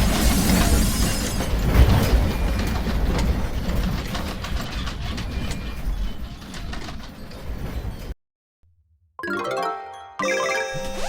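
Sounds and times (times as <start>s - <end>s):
rattles and clicks: 1.6s - 8.0s.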